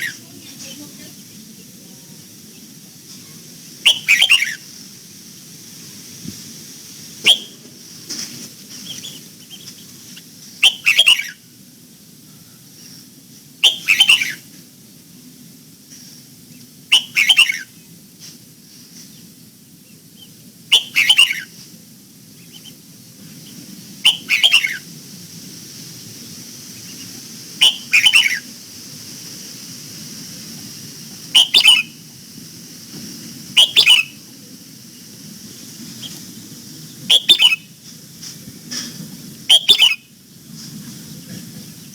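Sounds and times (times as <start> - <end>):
faint high hiss: 0.0 - 41.9
bird singing: 3.8 - 4.6, 10.6 - 11.4, 13.6 - 14.4, 16.9 - 17.8, 19.9 - 21.5, 22.4 - 22.8, 24.0 - 24.8, 26.8 - 28.5, 31.4 - 32.0, 33.6 - 34.3, 37.0 - 37.7, 39.5 - 40.1.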